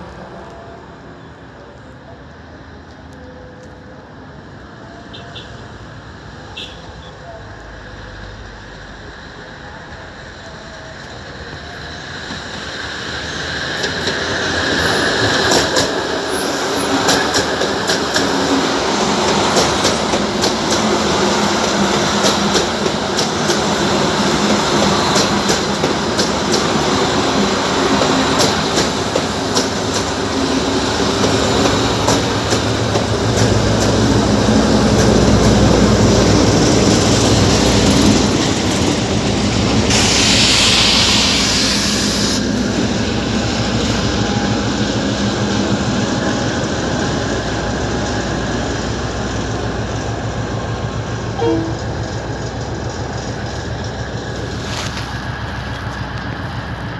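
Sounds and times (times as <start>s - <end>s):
train wheels clicking over rail joints: 11.0s - 41.6s, 47.8s - 56.9s
burst of hiss: 39.9s - 42.6s.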